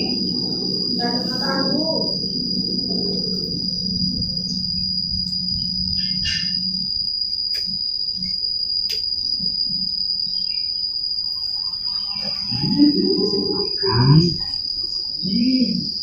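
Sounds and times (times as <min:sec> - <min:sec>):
high-pitched insect trill: 0:00.0 - 0:16.0.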